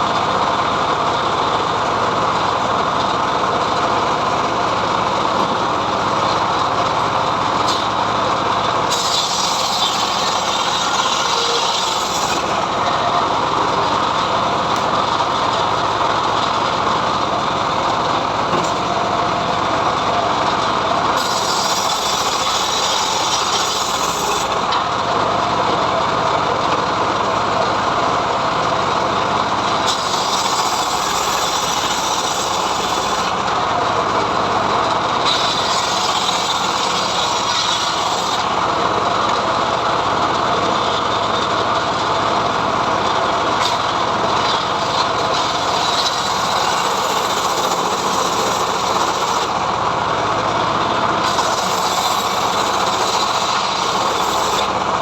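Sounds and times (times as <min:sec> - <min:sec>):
sawmill running: 0:00.0 - 0:55.0
saw blade hissing through log: 0:08.8 - 0:12.6, 0:21.2 - 0:24.6, 0:29.8 - 0:33.5, 0:35.2 - 0:38.6, 0:43.6 - 0:49.6, 0:51.2 - 0:55.0.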